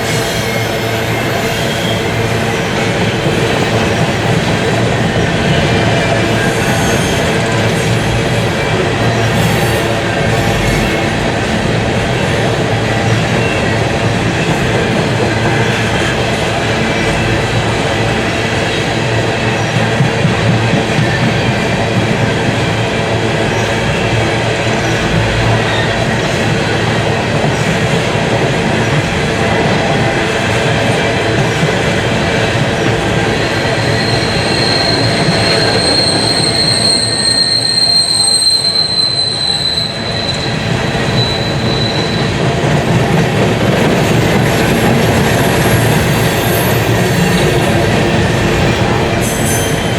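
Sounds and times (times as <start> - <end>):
freight train wheels clattering: 0.0 - 49.9
high wheel squeal: 33.4 - 42.3.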